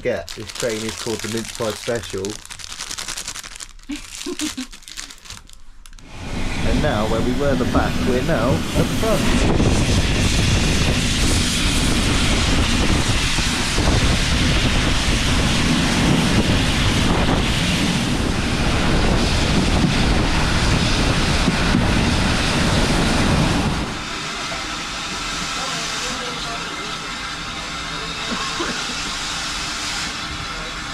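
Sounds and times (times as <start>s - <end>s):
steam train running: 6.2s - 30.9s
wind buffeting microphone: 6.3s - 24.1s.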